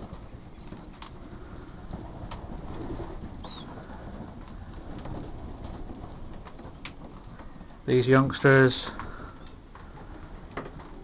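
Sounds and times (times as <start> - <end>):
pigeons cooing: 3.2 - 5.1.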